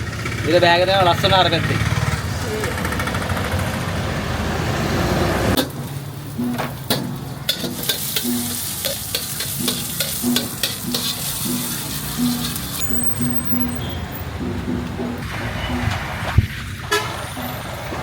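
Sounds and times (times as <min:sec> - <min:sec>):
food sizzling on griddle: 0:07.5 - 0:12.8.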